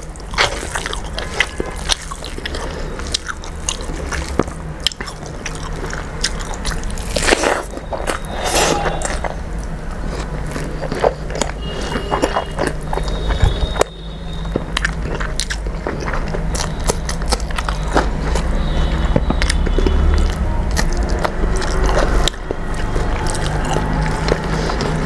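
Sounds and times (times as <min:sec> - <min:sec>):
steady low hum: 0:00.0 - 0:19.2
close chewing with wet mouth clicks: 0:00.0 - 0:25.0.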